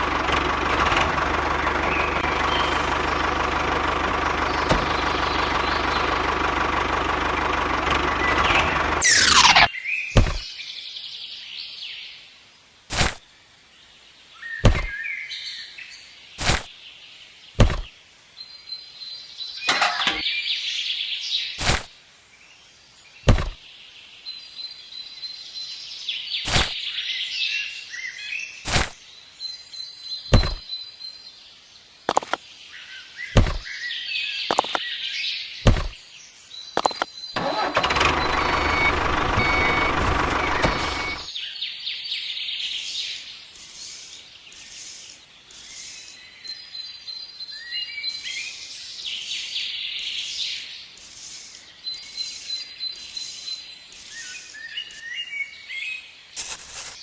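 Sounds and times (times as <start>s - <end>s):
birds chirping: 0.0s - 12.0s, 13.9s - 21.9s, 22.7s - 57.0s
sharp clicks or knocks: 23.3s - 23.6s, 30.3s - 30.6s, 33.4s - 33.6s.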